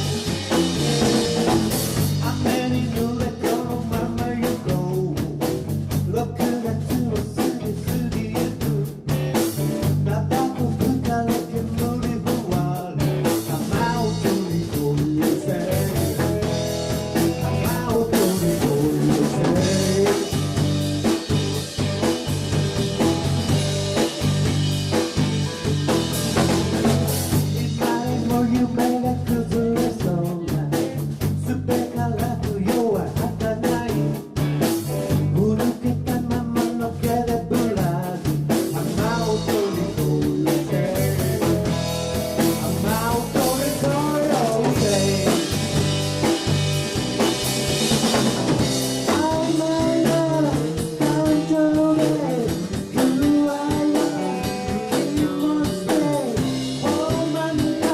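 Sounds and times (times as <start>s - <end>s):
band playing drums and guitar: 0.0s - 57.9s
person singing: 0.9s - 16.4s, 17.2s - 20.7s, 27.4s - 34.3s, 35.1s - 41.7s, 42.4s - 45.7s, 49.0s - 57.9s.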